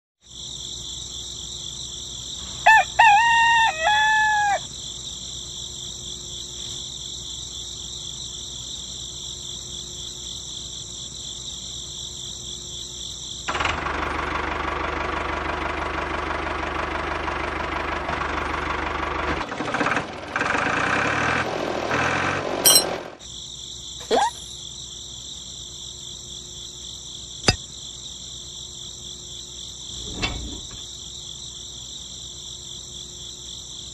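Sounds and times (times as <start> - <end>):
insects chirring: 0.3 - 13.5, 22.7 - 33.9
rooster crowing: 2.6 - 4.7.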